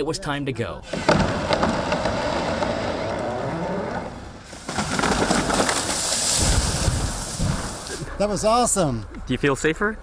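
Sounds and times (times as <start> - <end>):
tree crashing down: 0.9 - 8.0
heavy thud of tree hitting ground: 4.7 - 7.8.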